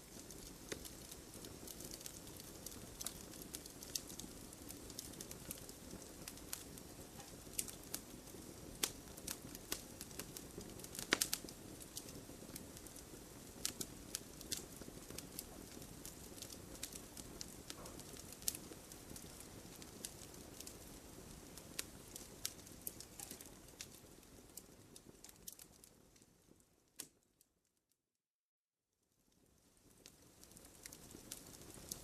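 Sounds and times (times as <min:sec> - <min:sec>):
campfire crackling and popping: 0:00.0 - 0:27.2, 0:29.4 - 0:32.0.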